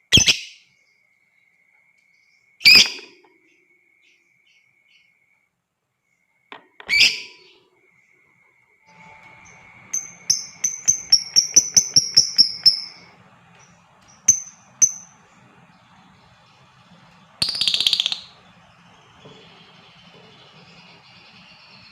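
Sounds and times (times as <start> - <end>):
lovebird calling and chirping: 0.1 - 0.6, 2.6 - 3.1, 6.8 - 7.7, 8.9 - 21.9.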